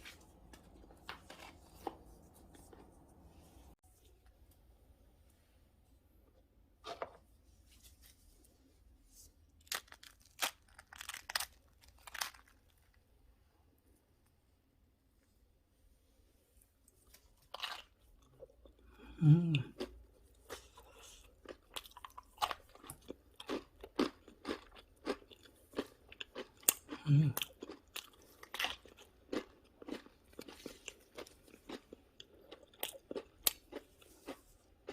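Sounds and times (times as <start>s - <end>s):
person chewing crunchy bread: 0.0s - 3.3s, 9.6s - 13.0s, 16.9s - 34.9s
crisp bread tearing: 9.6s - 13.0s.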